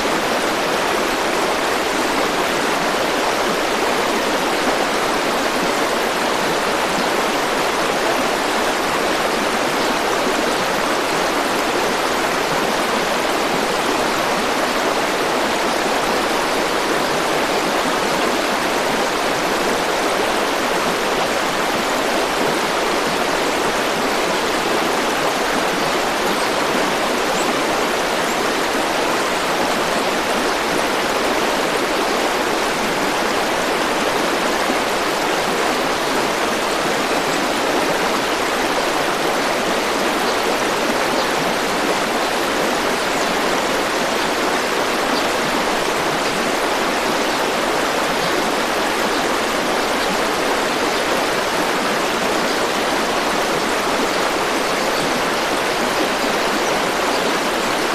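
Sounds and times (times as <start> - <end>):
stream rushing and splashing: 0.0 - 57.9.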